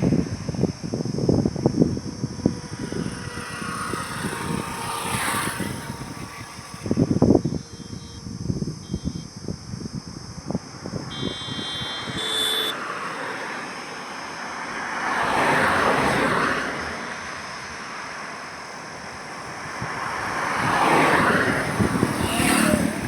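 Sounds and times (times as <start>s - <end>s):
vehicle passing: 2.4s - 7.5s, 11.1s - 23.0s
brief high-pitched tone: 11.1s - 13.8s.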